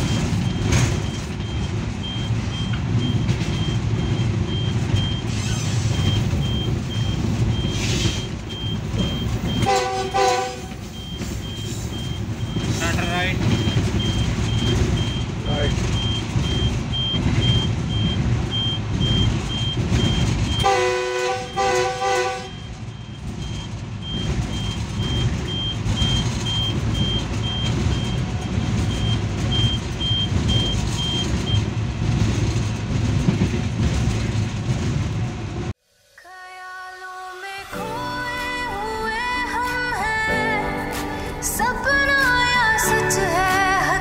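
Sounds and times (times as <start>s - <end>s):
high electronic beep: 0.0s - 10.2s, 10.9s - 20.6s
locomotive engine and wheels rumbling: 0.0s - 35.8s
locomotive chime horn blasts: 9.5s - 10.9s, 20.6s - 22.6s.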